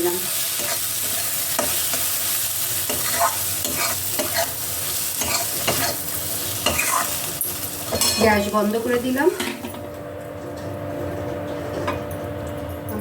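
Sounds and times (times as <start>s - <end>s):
spices sizzling in a pan: 0.0s - 9.5s
spatula scraping a pan: 2.8s - 7.2s.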